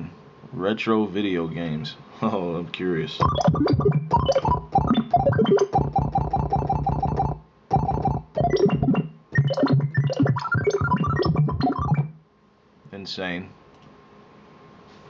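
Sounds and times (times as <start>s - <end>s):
retro video game synthesizer notes: 3.2s - 12.2s.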